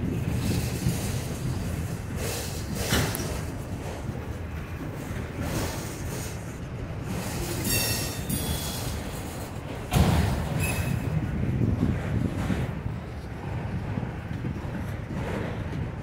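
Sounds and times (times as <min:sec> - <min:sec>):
freight train rumbling past: 0:00.0 - 0:16.0
high-pitched wheel squeal: 0:07.6 - 0:08.9.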